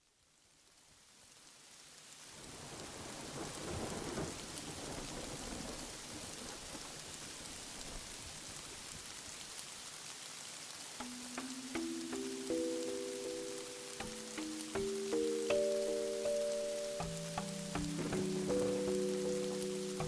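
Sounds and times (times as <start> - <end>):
heavy rain: 1.4 - 20.0
thunder rumble: 2.7 - 8.3, 17.1 - 20.0
sustained musical notes: 11.0 - 20.0.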